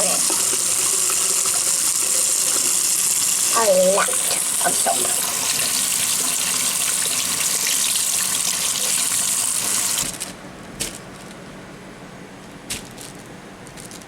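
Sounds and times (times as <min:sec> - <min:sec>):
tap water running into sink: 0:00.0 - 0:10.2.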